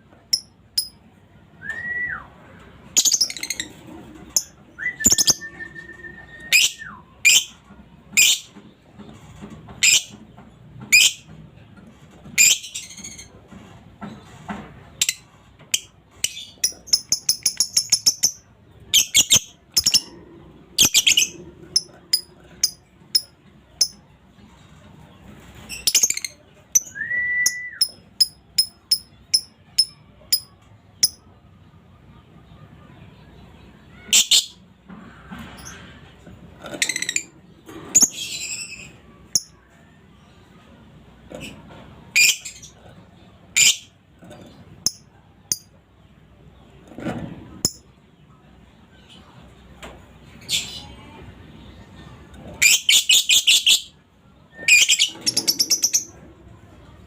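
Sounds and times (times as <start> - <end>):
lovebird chirping and chattering: 0.3 - 1.0, 2.9 - 5.5, 15.0 - 20.1, 20.8 - 24.0, 25.7 - 31.2, 36.7 - 37.3, 37.9 - 39.6, 43.5 - 43.9, 44.8 - 45.7, 47.6 - 47.8, 52.6 - 54.0, 54.7 - 56.2.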